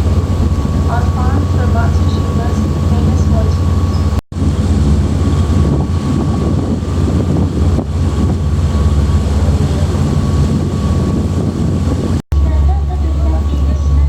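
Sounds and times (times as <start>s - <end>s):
boat engine droning: 0.0s - 14.0s
thin steady whine: 12.3s - 14.0s.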